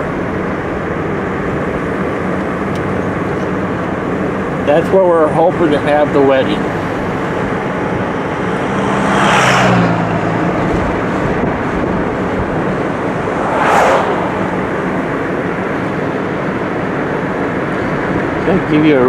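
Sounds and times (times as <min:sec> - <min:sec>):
car road and engine noise: 0:00.0 - 0:19.0
brief whooshes: 0:12.6 - 0:15.9.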